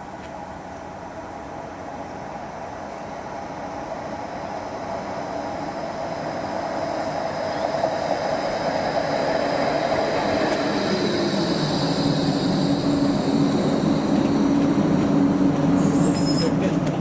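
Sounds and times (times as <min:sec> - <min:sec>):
train running on rails: 0:00.0 - 0:17.0
electric whine: 0:04.6 - 0:17.0.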